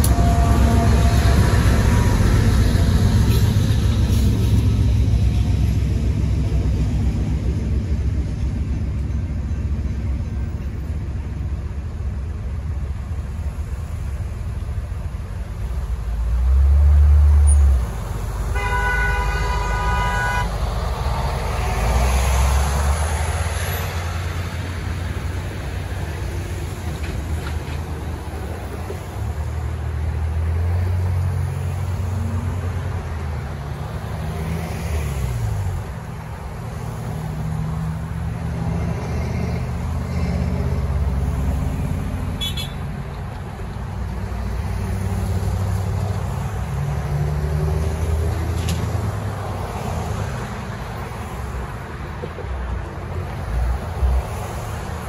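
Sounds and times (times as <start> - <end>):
train horn chord: 0.0 - 2.2
freight train rumbling past: 0.0 - 55.0
road vehicles moving: 0.0 - 55.0.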